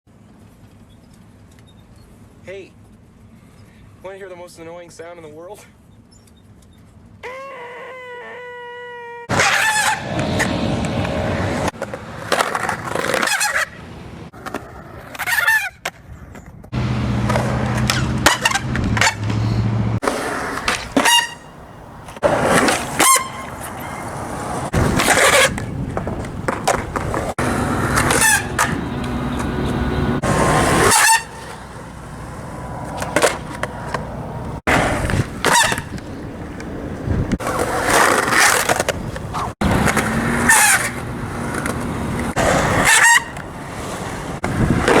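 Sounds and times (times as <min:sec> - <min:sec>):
skateboard wheels squealing: 0:05.9 - 0:16.6, 0:17.2 - 0:45.0
skateboard rolling on pavement: 0:09.3 - 0:45.0.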